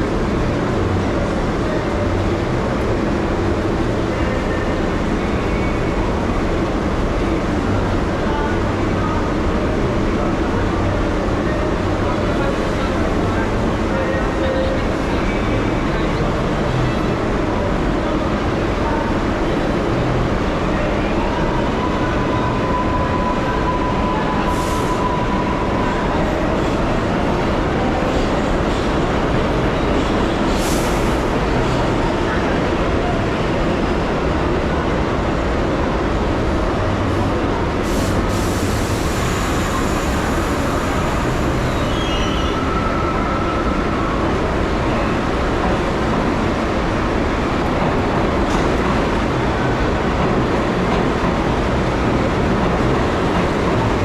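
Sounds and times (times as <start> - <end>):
subway wheels rumbling on track: 0.0 - 54.0
faint wheel squeals: 38.0 - 44.3.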